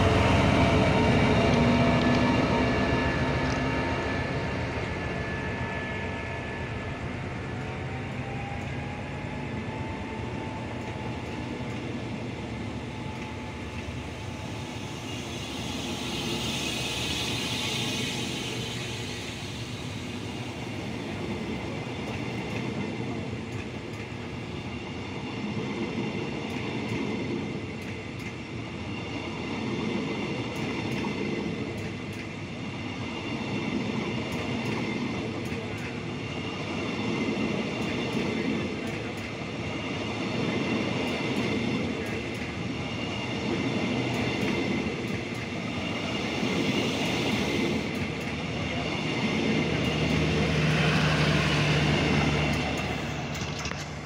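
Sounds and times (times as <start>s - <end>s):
train wheels rumbling past: 0.0s - 54.0s
rising hiss: 12.6s - 21.8s.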